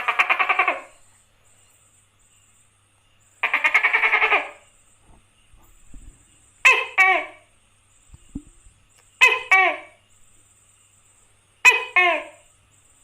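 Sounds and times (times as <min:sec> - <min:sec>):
gecko calling: 0:00.0 - 0:01.2, 0:03.2 - 0:10.2, 0:11.6 - 0:12.6.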